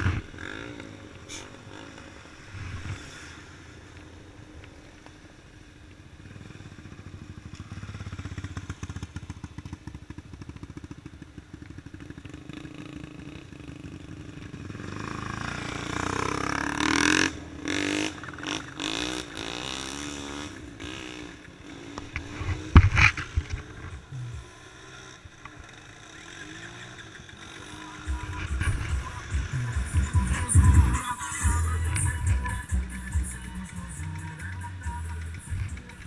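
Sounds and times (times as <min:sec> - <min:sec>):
engine running: 0:06.2 - 0:36.0
vehicle passing: 0:13.6 - 0:36.0.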